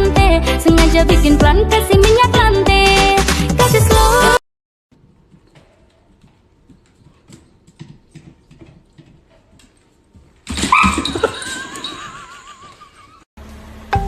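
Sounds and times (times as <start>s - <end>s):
dog whining: 10.6s - 11.3s.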